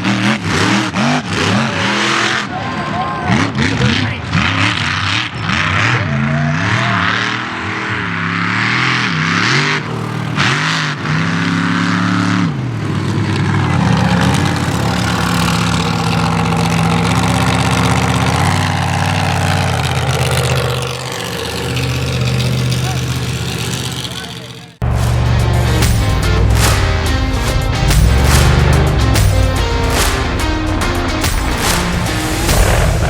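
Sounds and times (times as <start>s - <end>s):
truck engine revving: 0.0s - 33.0s
loud rushing noise: 24.8s - 33.0s.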